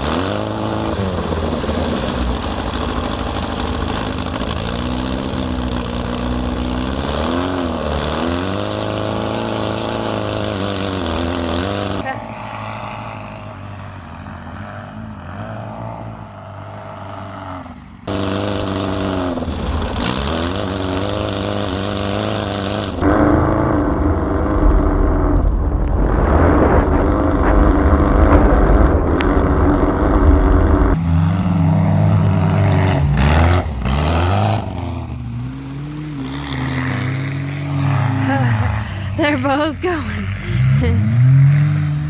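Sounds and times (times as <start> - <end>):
car engine revving hard: 0.0 - 12.2, 15.3 - 42.0.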